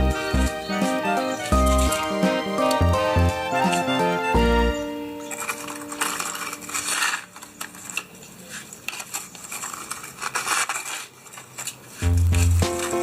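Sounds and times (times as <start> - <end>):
music: 0.0 - 7.0, 12.0 - 13.0
small hard objects clattering: 1.4 - 2.8, 5.2 - 13.0.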